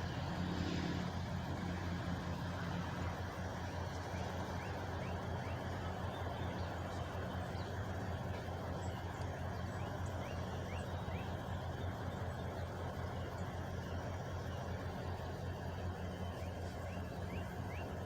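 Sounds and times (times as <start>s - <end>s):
truck engine idling: 0.0s - 18.0s
bird chirping: 4.0s - 18.0s.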